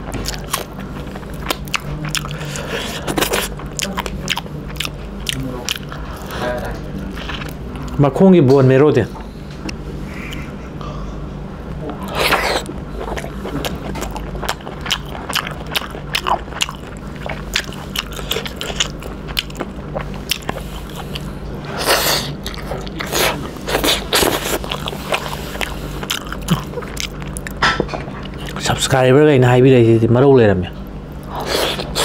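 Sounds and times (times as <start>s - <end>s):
person chewing and lip-smacking: 0.0s - 8.0s, 11.9s - 28.7s
low steady hum: 0.0s - 32.0s.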